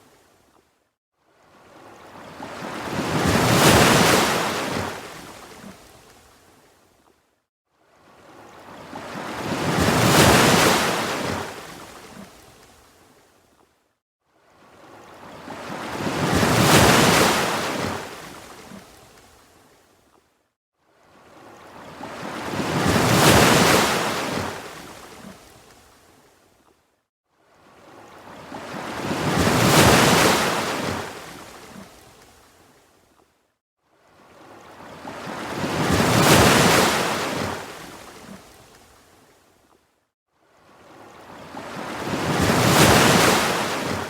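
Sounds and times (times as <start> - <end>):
ocean waves breaking: 1.7 - 5.9, 8.1 - 12.6, 14.8 - 18.9, 21.3 - 25.5, 27.8 - 32.0, 34.3 - 38.8, 40.8 - 44.0.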